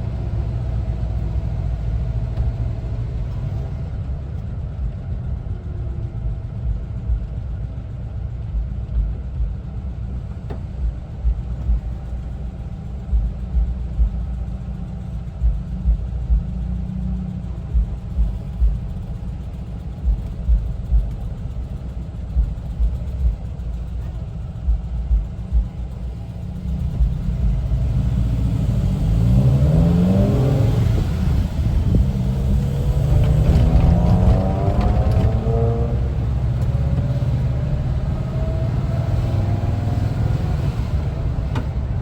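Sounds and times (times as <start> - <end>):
road noise: 0.0 - 42.0
van engine rumbling while driving: 0.0 - 42.0.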